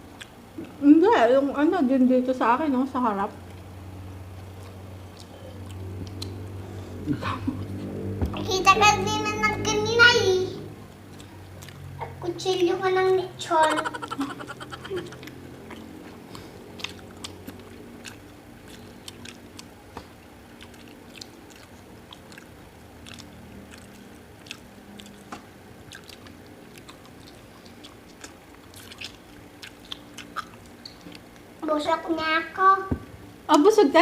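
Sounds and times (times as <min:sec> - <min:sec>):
chewing and biting food: 0:04.3 - 0:06.7, 0:11.0 - 0:12.7, 0:13.9 - 0:31.6
wet clicks and crunches: 0:16.8 - 0:31.5.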